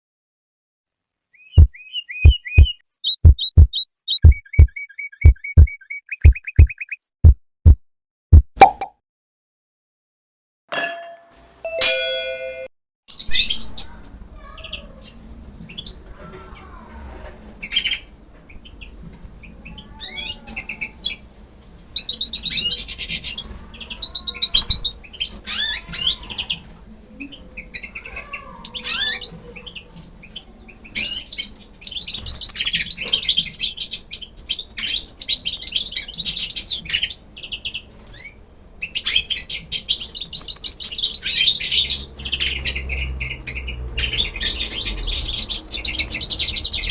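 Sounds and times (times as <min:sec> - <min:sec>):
slower lower bird calls: 0:01.4 - 0:07.1
birds twittering rapidly: 0:01.4 - 0:07.2, 0:13.1 - 0:46.9.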